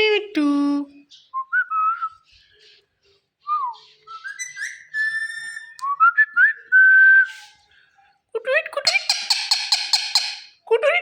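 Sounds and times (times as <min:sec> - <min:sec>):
whistled notes: 0:03.4 - 0:07.5.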